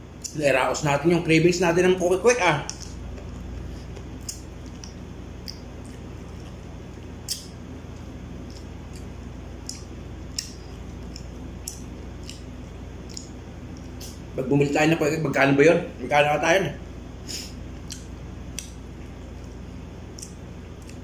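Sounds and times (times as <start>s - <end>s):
steady low hum: 0.0s - 21.0s
person chewing with wet smacks: 2.6s - 14.2s, 17.7s - 21.0s.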